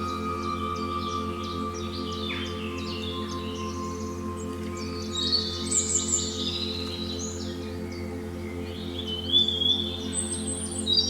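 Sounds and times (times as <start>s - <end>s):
ambient music drone: 0.0s - 11.0s
songbirds chirping and trilling: 0.0s - 11.0s.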